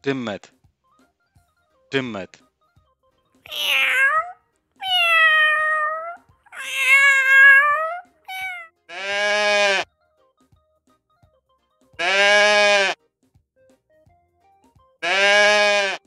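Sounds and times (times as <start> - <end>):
cat meowing: 3.5 - 9.8, 15.0 - 16.0
sheep bleat: 3.5 - 9.9, 12.0 - 13.0, 15.0 - 16.0.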